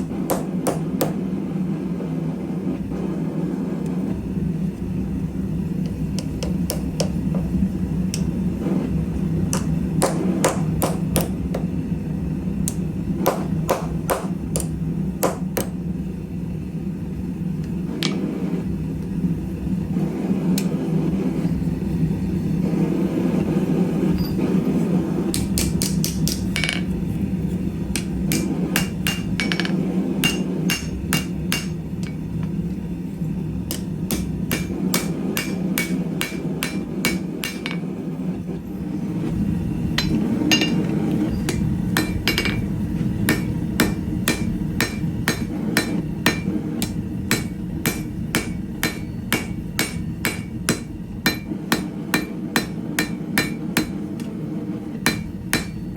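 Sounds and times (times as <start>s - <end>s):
hammer striking steel on anvil: 0.0s - 1.2s, 6.2s - 7.5s, 9.5s - 11.8s, 12.6s - 15.8s, 25.3s - 26.9s, 27.9s - 32.5s, 33.7s - 38.0s, 39.9s - 54.4s, 55.0s - 55.9s
steady low hum: 0.0s - 55.9s.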